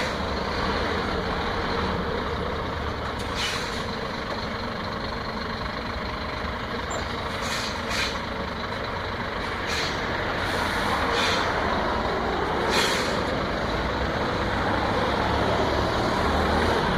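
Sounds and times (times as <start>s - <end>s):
truck engine at low speed: 0.0s - 16.9s
air brake hisses: 3.2s - 3.9s, 7.3s - 8.2s, 9.4s - 11.6s, 12.6s - 13.3s.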